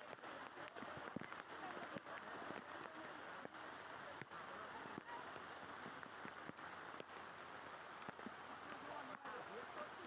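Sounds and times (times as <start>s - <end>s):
rain or flowing water noise: 0.0s - 10.0s.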